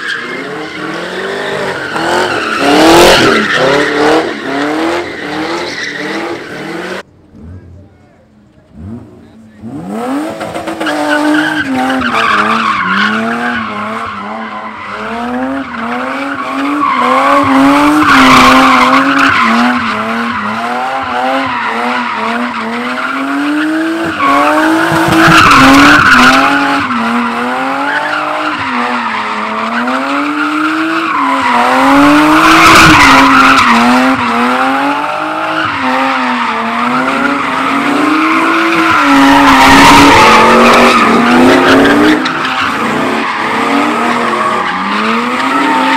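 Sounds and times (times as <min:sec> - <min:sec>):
car engine revving: 0:00.0 - 0:07.9, 0:08.5 - 0:45.9
tyre squeal: 0:35.1 - 0:45.9.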